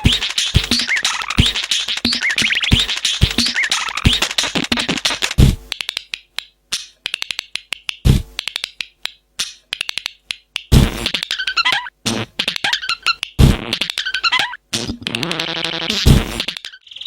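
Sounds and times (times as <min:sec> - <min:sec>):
cage birds chirping: 0:00.0 - 0:04.3.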